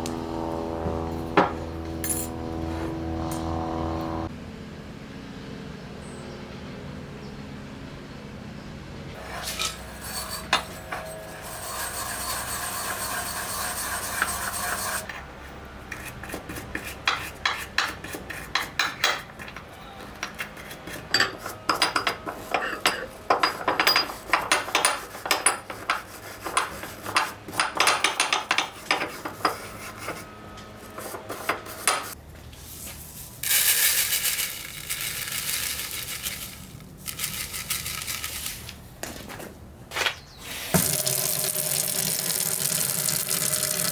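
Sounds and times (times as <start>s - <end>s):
metal scraping and clinking: 1.4s - 3.5s, 9.2s - 15.2s.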